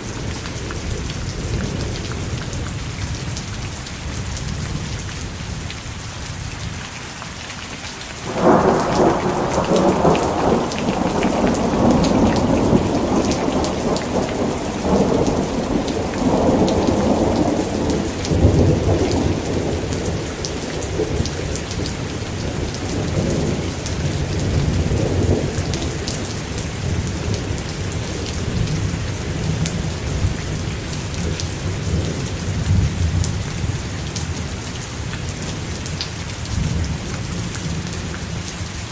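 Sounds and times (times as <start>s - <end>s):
steady rain: 0.0s - 38.9s
rolling thunder: 8.3s - 33.8s.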